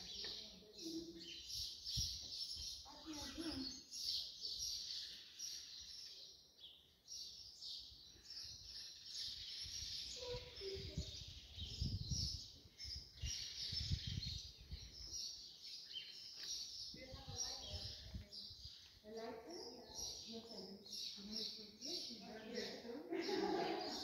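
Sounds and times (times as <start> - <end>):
small birds chirping: 0.0 - 24.0
low rumbles on microphone: 10.8 - 12.4.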